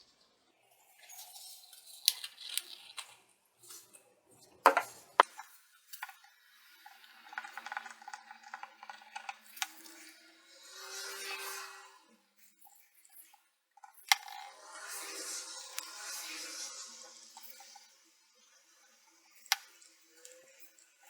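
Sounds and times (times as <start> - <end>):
small hard objects clicking: 1.4 - 3.2, 6.9 - 10.0.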